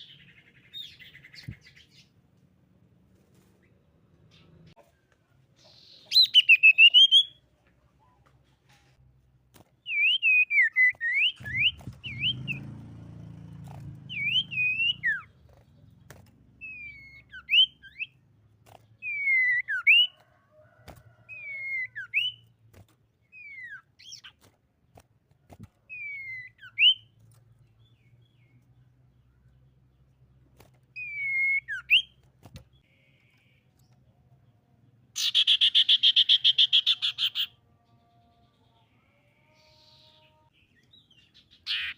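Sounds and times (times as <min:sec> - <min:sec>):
bird singing whistled notes: 0:05.8 - 0:07.4, 0:09.8 - 0:12.7, 0:14.1 - 0:15.3, 0:16.6 - 0:18.2, 0:19.0 - 0:20.2, 0:21.3 - 0:22.4, 0:23.3 - 0:24.3, 0:25.9 - 0:27.1, 0:31.0 - 0:32.2.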